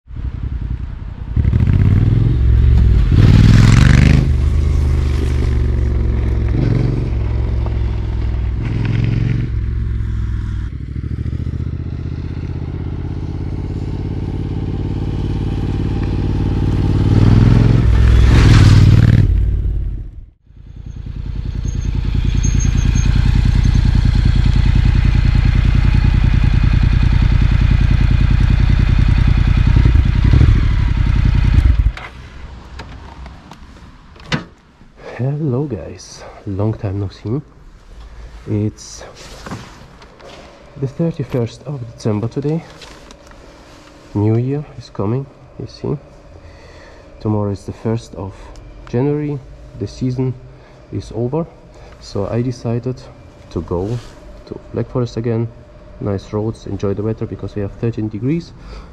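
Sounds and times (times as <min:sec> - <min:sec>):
motorcycle engine revving: 0:00.2 - 0:32.1.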